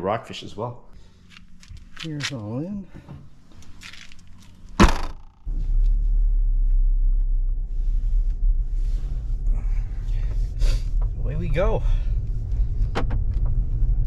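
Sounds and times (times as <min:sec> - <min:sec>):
car engine starting and idling: 0:01.0 - 0:14.0.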